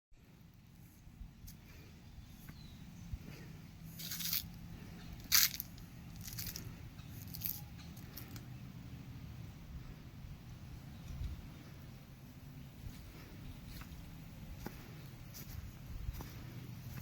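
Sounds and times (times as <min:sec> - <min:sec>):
short crunching noises: 0:03.9 - 0:08.5.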